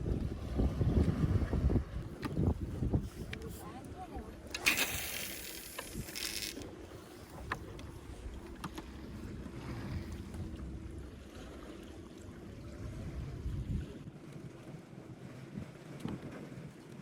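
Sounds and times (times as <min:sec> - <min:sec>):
wind on microphone: 0:00.0 - 0:06.6, 0:12.5 - 0:14.1
boat engine low rumble: 0:00.0 - 0:17.0.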